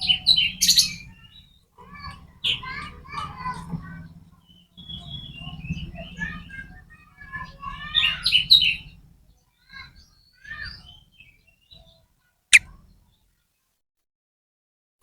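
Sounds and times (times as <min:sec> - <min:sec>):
bird singing harsh chirps: 0:00.0 - 0:01.6.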